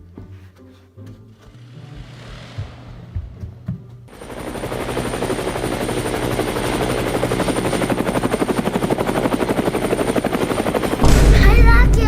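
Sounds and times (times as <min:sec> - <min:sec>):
rapid fluttering whir: 0:01.4 - 0:11.0.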